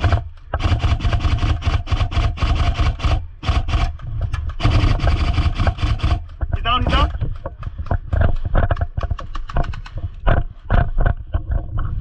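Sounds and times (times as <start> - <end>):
airsoft rifle firing: 0.0 - 7.7.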